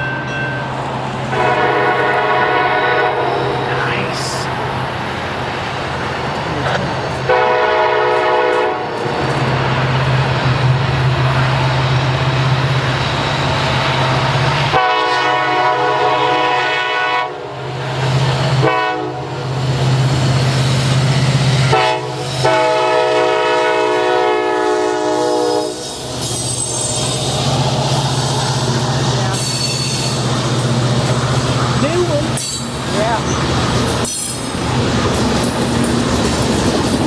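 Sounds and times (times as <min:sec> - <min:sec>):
train rumbling on rails: 0:00.0 - 0:37.0
locomotive air horn blasts: 0:01.3 - 0:04.4, 0:07.3 - 0:09.0, 0:14.7 - 0:17.8, 0:18.6 - 0:19.4, 0:21.6 - 0:25.9
locomotive engine running: 0:03.0 - 0:14.8, 0:26.1 - 0:37.0.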